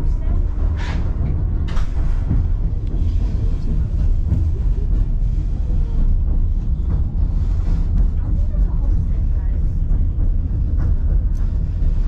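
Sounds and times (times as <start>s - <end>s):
train car rumbling on track: 0.0s - 12.0s.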